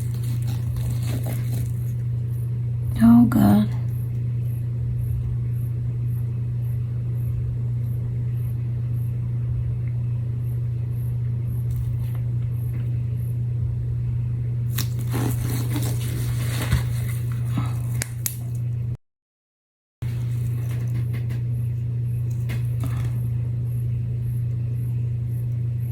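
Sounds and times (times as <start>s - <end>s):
steady low hum: 0.0s - 19.0s, 20.0s - 25.9s.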